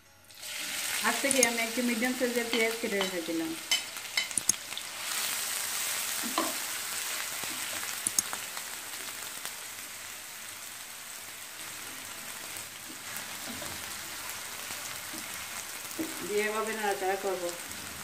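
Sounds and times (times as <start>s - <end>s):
onion sizzling in oil: 0.3s - 18.0s
short clicks: 4.3s - 4.6s, 8.0s - 8.4s.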